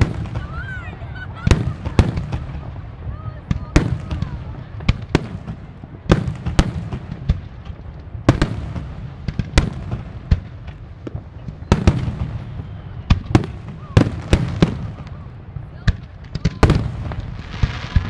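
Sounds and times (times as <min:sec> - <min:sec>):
fireworks bursting bangs: 0:00.0 - 0:18.0.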